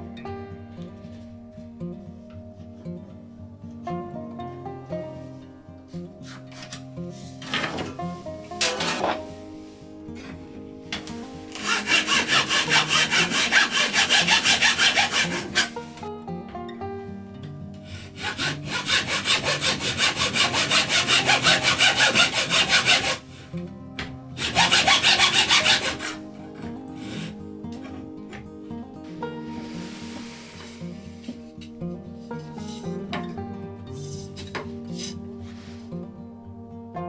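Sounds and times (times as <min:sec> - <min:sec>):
background music: 0:00.0 - 0:37.0
rasping saw strokes: 0:06.2 - 0:10.3, 0:11.0 - 0:16.1, 0:17.8 - 0:23.6, 0:24.4 - 0:26.3, 0:26.9 - 0:28.4, 0:29.0 - 0:31.7.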